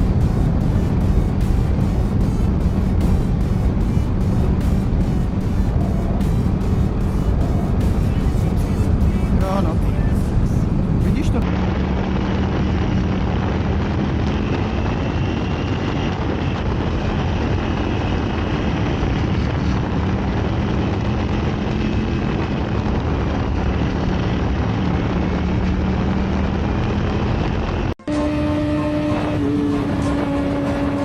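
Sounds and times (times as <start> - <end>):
steady engine hum: 0.0 - 31.0
vehicle engine drone: 0.0 - 31.0
wind and road noise: 0.0 - 31.0.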